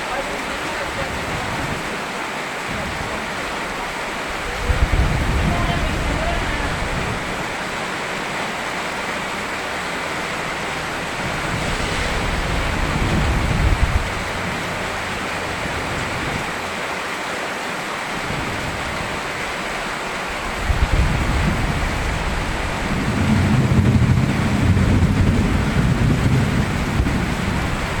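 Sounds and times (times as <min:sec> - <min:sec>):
rain falling: 0:00.0 - 0:28.0
low rumble: 0:11.0 - 0:15.1.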